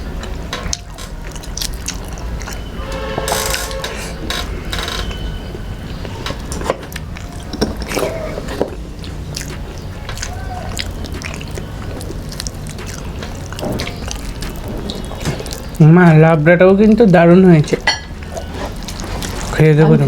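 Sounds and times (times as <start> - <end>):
chewing and biting: 0.7 - 2.7, 6.6 - 15.8, 18.2 - 20.0
wet mouth clicks: 9.0 - 15.7.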